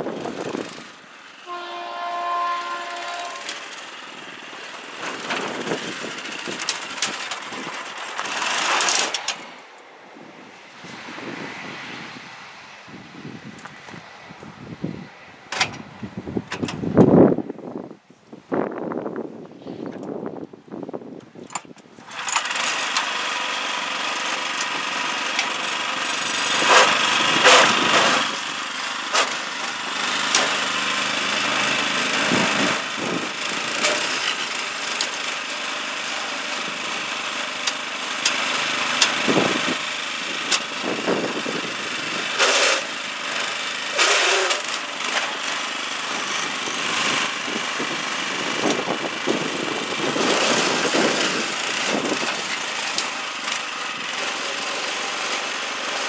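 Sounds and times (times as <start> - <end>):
small petrol engine running: 0.0 - 9.7, 21.9 - 56.0.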